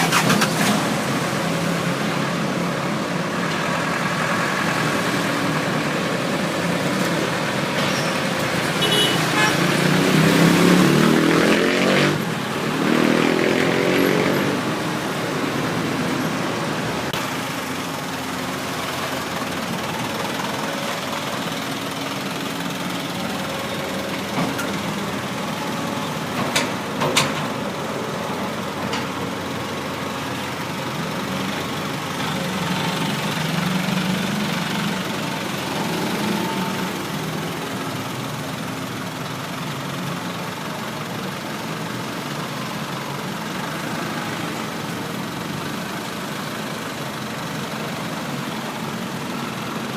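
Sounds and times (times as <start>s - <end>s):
diesel engine running: 14.5s - 49.9s.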